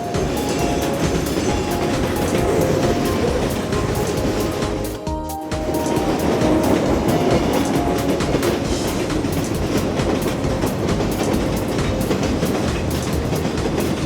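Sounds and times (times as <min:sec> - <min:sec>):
train rumbling on tracks: 0:00.0 - 0:14.0
wheels clicking over rail joints: 0:00.0 - 0:14.0.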